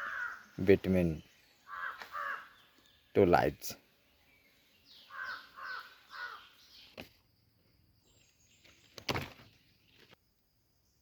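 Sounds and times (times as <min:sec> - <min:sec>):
bird calling: 0:00.0 - 0:03.2, 0:04.2 - 0:07.2.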